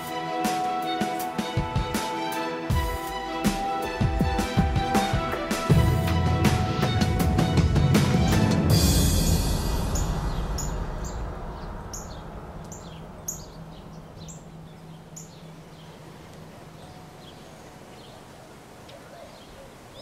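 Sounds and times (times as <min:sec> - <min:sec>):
small birds chirping: 0:09.9 - 0:20.0.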